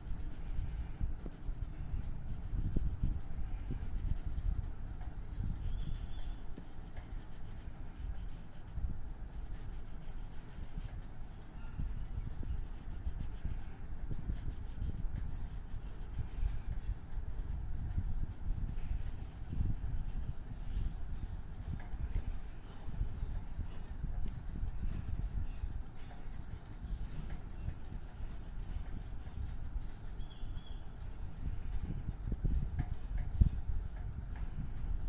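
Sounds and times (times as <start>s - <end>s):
pencil rubbing on paper: 0.0s - 4.5s, 5.5s - 17.6s, 18.4s - 21.0s, 26.8s - 30.2s.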